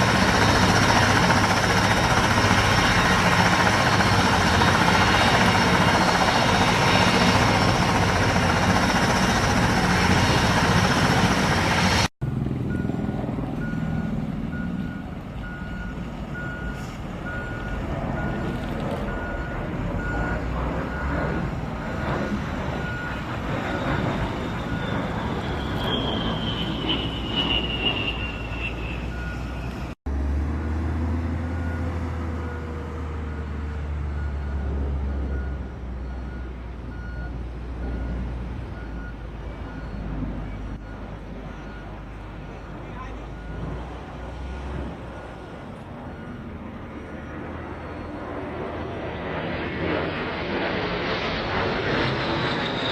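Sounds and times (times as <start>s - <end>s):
engine noise: 0.0s - 52.9s
high whine gliding down: 19.6s - 30.0s
short high beeps: 24.6s - 29.7s.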